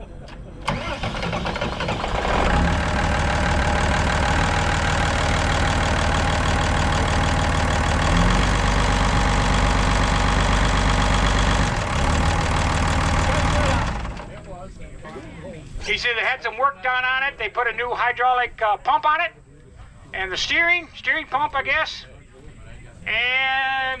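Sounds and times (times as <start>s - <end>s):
small tractor engine idling: 0.2s - 14.5s.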